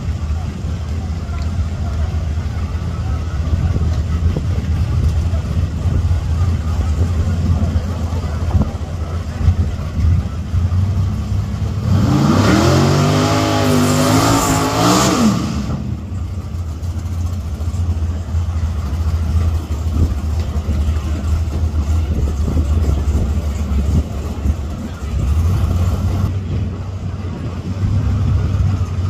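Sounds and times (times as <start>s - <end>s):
race car engine idling and revving: 0.0s - 29.0s.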